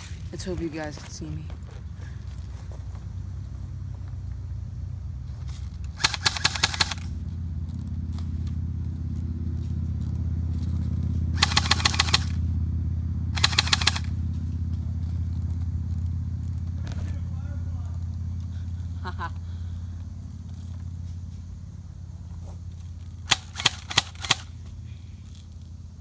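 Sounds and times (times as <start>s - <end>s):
steady low rumble: 0.0s - 26.0s
airsoft gun full-auto bursts: 5.9s - 7.2s, 11.4s - 12.5s, 13.4s - 14.3s, 23.2s - 24.7s.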